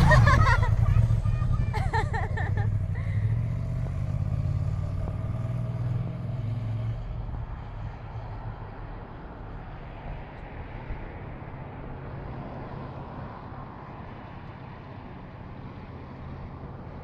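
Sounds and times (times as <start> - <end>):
motorcycle engine running: 0.0 - 5.9.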